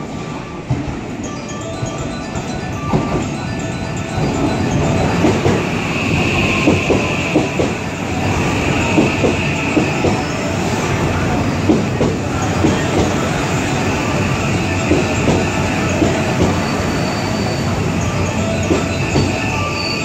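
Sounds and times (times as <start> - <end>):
train rumble: 0.0 - 20.0
train wheels clacking over joints: 4.2 - 19.4
high wheel squeal: 4.3 - 11.6, 12.3 - 20.0.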